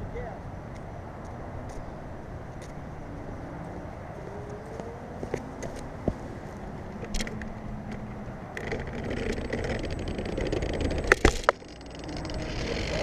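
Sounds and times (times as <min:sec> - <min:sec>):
remote control car motor and tyres: 0:08.6 - 0:13.0.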